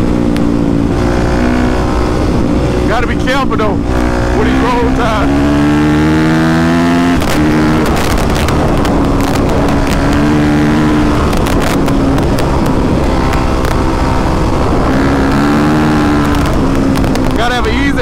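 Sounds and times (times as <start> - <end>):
dirt bike engine running: 0.0 - 18.0
sharp knocks and clicks: 7.2 - 13.8, 16.1 - 17.4.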